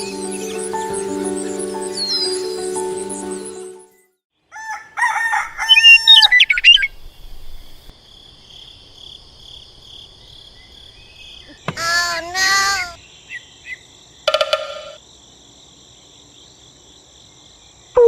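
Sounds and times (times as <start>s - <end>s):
rooster crowing: 4.5s - 6.8s
farmyard fowl calling: 4.6s - 7.0s.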